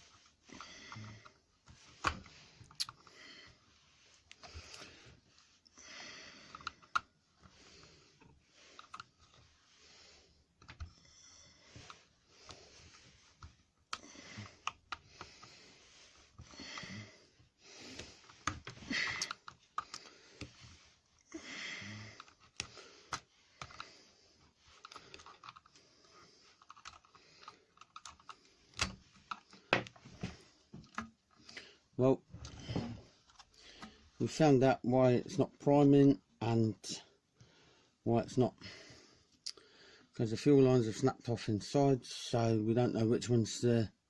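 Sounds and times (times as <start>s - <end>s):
plastic and rubber parts handled: 0.0s - 5.7s, 6.5s - 9.8s, 11.6s - 21.3s, 22.1s - 34.3s.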